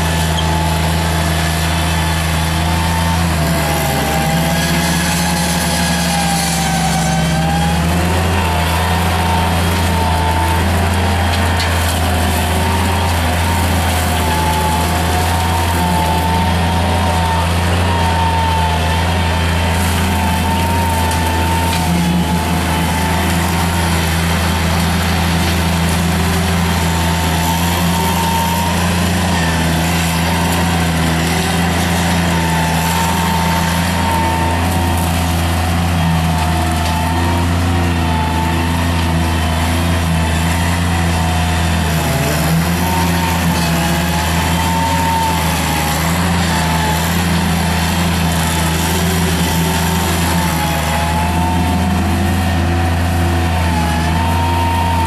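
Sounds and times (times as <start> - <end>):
loader engine running: 0.0 - 55.0.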